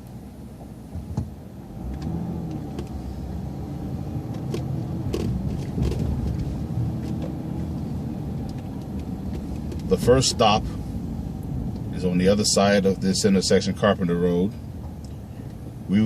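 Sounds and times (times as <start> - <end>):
bus engine rumble: 0.0 - 16.0
clicks and rattles: 4.4 - 7.4.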